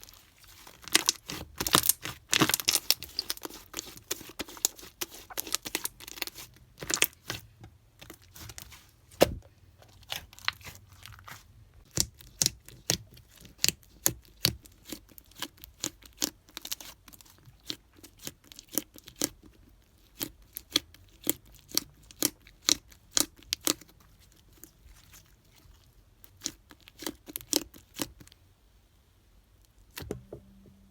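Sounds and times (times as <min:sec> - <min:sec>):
slime popping and crackling: 0:00.5 - 0:07.4.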